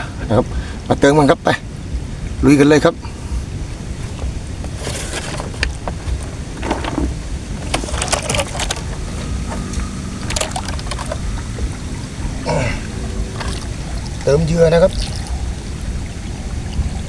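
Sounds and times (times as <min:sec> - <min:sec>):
steady low rumble: 0:00.0 - 0:17.0
crackling wood and dry brush: 0:03.7 - 0:14.4.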